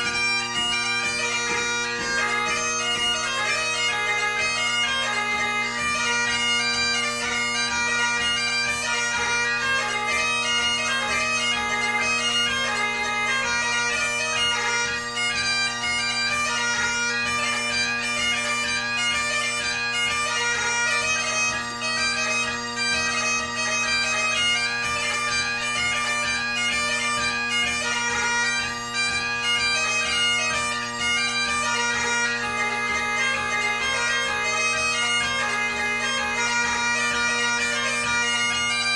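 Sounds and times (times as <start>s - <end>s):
bagpipe chanter melody: 0.0s - 38.9s
bagpipe drones humming: 0.0s - 38.9s.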